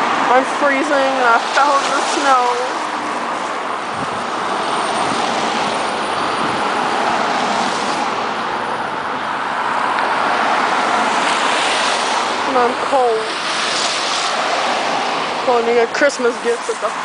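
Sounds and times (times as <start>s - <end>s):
car tyres hissing on wet road: 0.1s - 5.9s, 6.7s - 8.5s, 9.7s - 17.0s.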